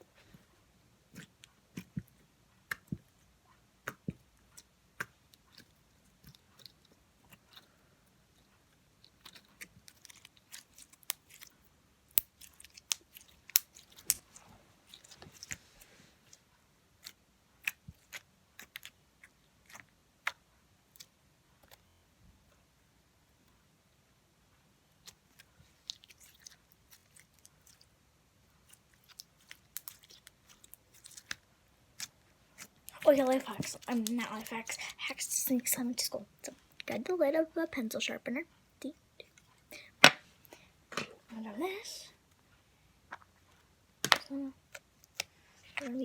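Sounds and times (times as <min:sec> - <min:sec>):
slime clicking and popping: 0:12.1 - 0:14.2.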